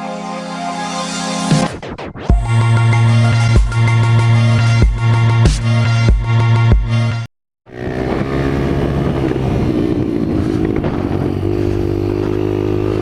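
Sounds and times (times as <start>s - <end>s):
dirt bike engine running: 7.7s - 13.0s.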